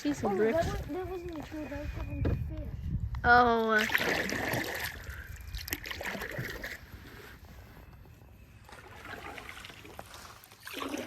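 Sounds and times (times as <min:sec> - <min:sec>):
water lapping around canoe: 0:03.8 - 0:07.7, 0:08.6 - 0:11.0.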